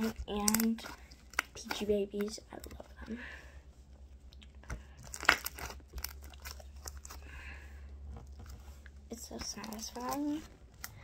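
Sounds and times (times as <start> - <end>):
slime crackling and popping: 0.0 - 2.8, 5.0 - 7.2.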